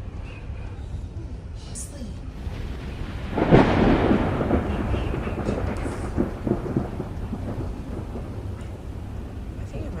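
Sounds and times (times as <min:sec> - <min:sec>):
thunder rumbling and crackling: 0:02.3 - 0:10.0.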